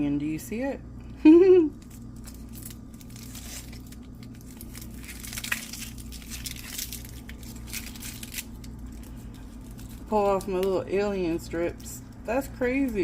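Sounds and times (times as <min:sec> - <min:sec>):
steady low hum: 0:00.0 - 0:13.0
onion layers tearing and crackling: 0:01.8 - 0:10.8.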